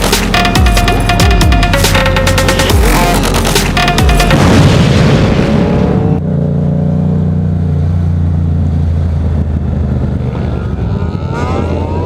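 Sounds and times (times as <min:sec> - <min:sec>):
motorcycle engine droning: 0:00.0 - 0:12.0
loud rushing noise: 0:01.1 - 0:06.2.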